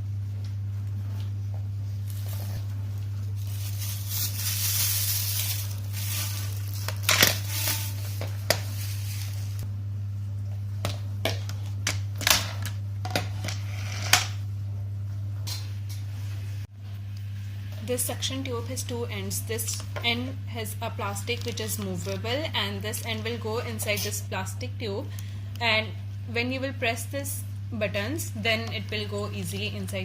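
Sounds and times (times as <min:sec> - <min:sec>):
steady low hum: 0:00.0 - 0:30.0
packaging rustling: 0:03.3 - 0:09.6.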